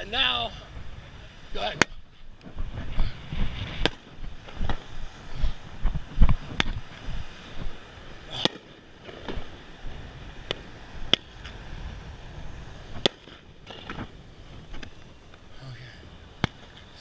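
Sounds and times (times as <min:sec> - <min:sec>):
fireworks bangs and cracks: 0:08.3 - 0:11.8, 0:12.8 - 0:14.9.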